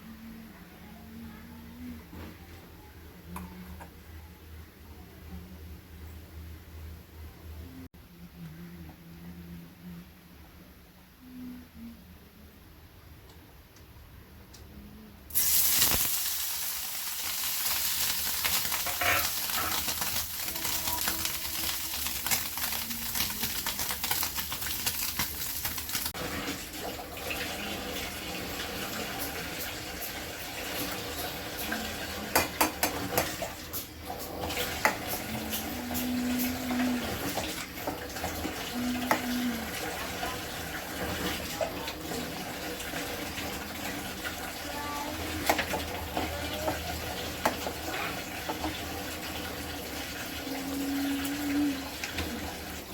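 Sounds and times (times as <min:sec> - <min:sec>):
food sizzling in hot oil: 0:15.3 - 0:26.8.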